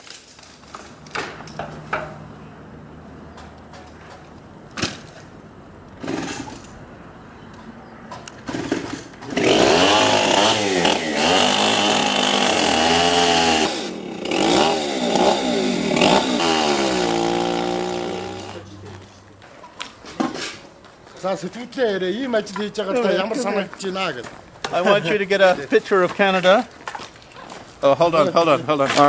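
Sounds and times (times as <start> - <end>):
chainsaw cutting timber: 8.5 - 18.6.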